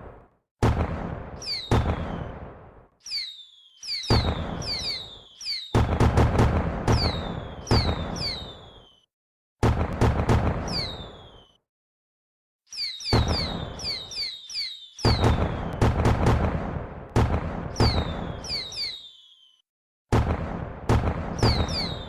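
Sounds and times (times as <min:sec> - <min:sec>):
fireworks bangs: 0:00.0 - 0:09.0, 0:09.6 - 0:11.6, 0:12.7 - 0:22.0
fireworks crackle: 0:00.8 - 0:02.4, 0:03.0 - 0:08.9, 0:09.6 - 0:11.5, 0:12.7 - 0:19.6
falling whistle: 0:01.4 - 0:02.3, 0:03.0 - 0:05.8, 0:06.9 - 0:09.1, 0:10.7 - 0:11.6, 0:12.7 - 0:15.8, 0:17.8 - 0:19.6, 0:21.4 - 0:22.0.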